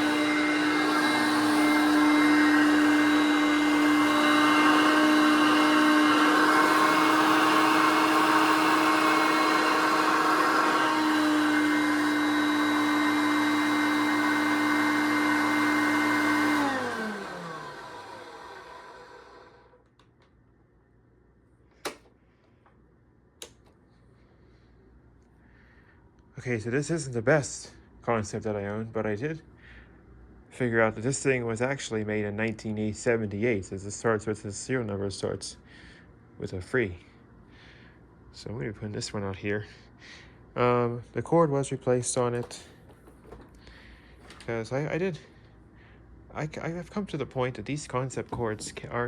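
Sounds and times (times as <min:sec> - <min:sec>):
vacuum cleaner motor whine: 0:00.0 - 0:19.8.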